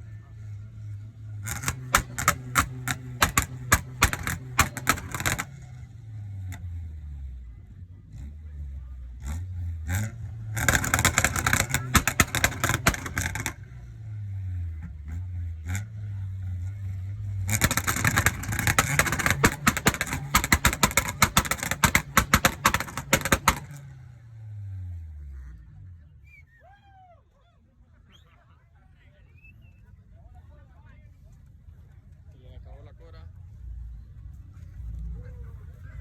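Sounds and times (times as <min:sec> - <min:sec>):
car engine revving: 0:00.1 - 0:25.9
exhaust crackling and popping: 0:00.4 - 0:06.8, 0:09.2 - 0:24.2.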